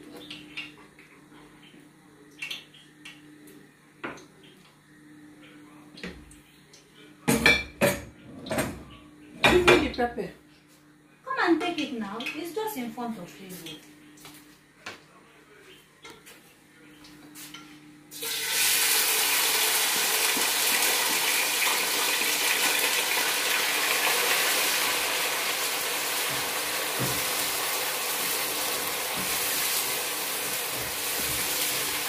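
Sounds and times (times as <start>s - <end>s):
food sizzling in hot oil: 18.1s - 32.0s.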